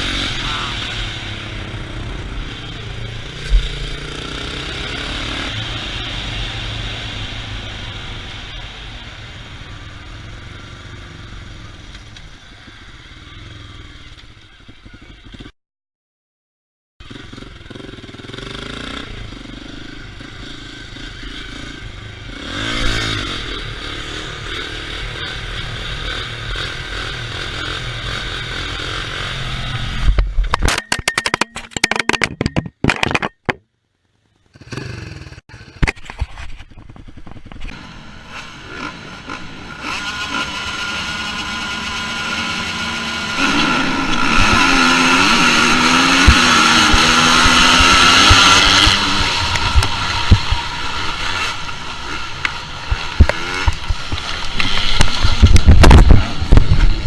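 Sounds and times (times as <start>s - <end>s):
engine revving: 0.0s - 8.6s, 17.1s - 30.1s, 37.7s - 57.0s
motorcycle engines running: 0.0s - 15.5s, 17.0s - 30.6s, 34.0s - 57.0s.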